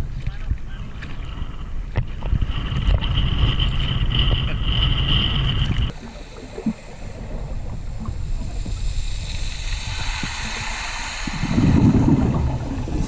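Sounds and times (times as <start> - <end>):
wind buffeting microphone: 0.0 - 13.0
steady high whine: 4.6 - 13.0
water washing: 5.9 - 13.0.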